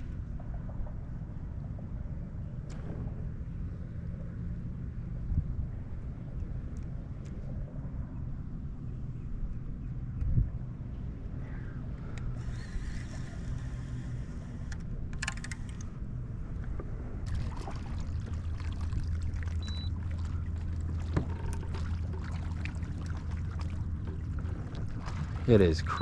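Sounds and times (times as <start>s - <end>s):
water lapping against kayak: 16.3s - 26.0s.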